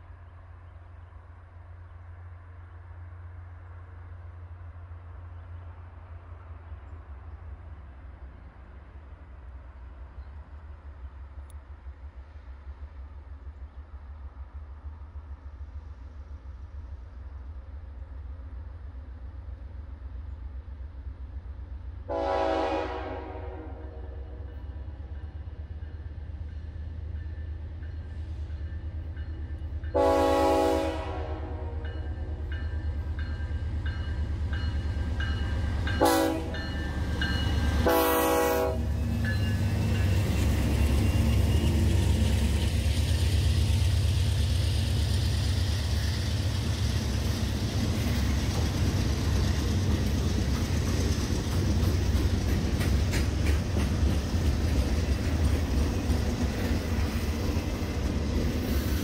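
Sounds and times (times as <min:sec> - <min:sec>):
train rumble: 0:00.0 - 0:59.0
train horn blasts: 0:22.1 - 0:24.5, 0:29.9 - 0:32.4, 0:35.9 - 0:36.9, 0:37.5 - 0:39.0
wheels clattering on rails: 0:38.9 - 0:58.8.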